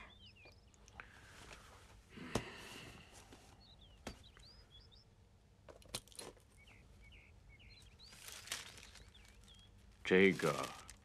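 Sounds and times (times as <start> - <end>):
small birds chirping: 0.0 - 11.0
paper rustling: 10.1 - 11.0.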